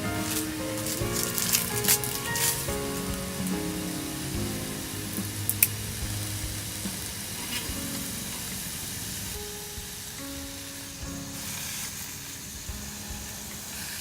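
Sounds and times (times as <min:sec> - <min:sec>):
background music: 0:00.0 - 0:14.0
food sizzling in frying: 0:00.0 - 0:14.0.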